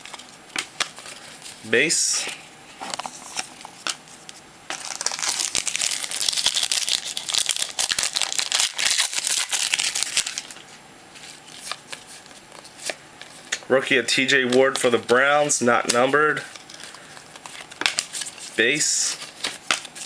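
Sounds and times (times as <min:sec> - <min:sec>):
foil wrapper crinkling and tearing: 0:04.7 - 0:10.6.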